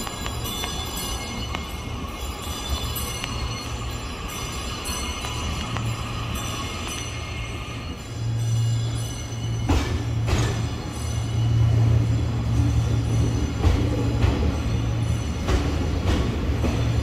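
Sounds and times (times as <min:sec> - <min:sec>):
train cars clunking: 0:00.0 - 0:17.0
train low hum: 0:00.0 - 0:17.0.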